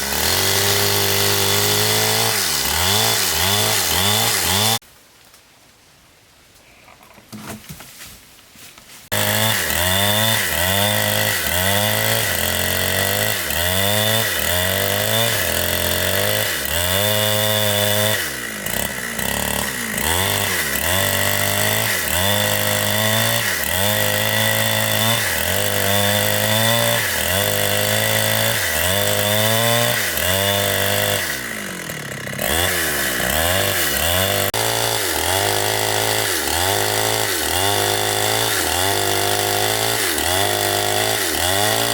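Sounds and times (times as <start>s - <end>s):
chainsaw cutting wood: 0.0s - 4.8s, 9.1s - 41.9s.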